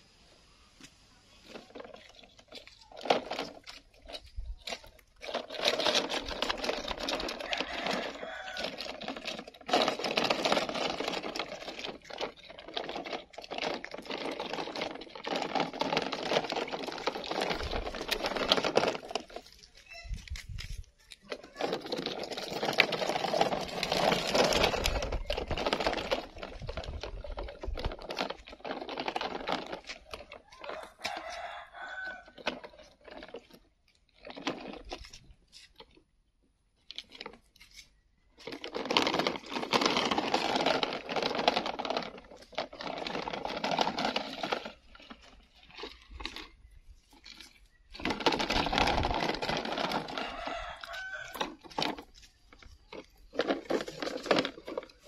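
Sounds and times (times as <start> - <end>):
plastic toy truck rattling: 1.3 - 55.0.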